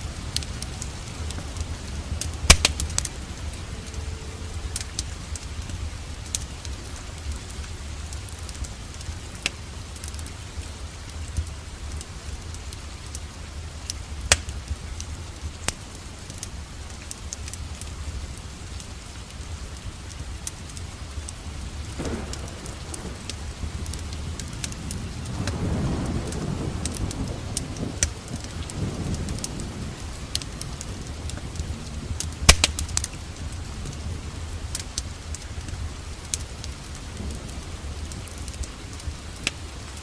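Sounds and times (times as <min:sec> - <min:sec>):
low rumble: 0:00.0 - 0:08.6, 0:21.7 - 0:36.0
steady rain: 0:00.0 - 0:40.0
wood fire crackling: 0:00.0 - 0:40.0.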